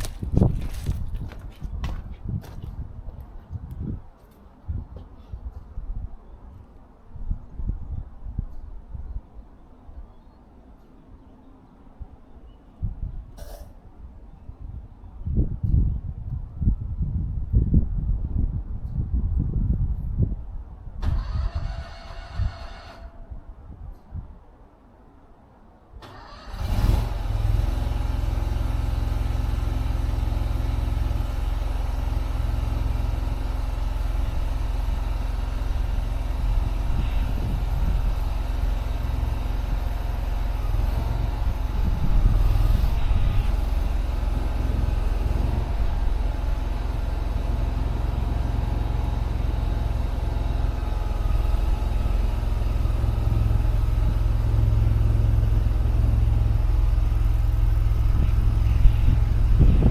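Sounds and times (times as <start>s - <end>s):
skid steer engine running: 26.5s - 59.9s.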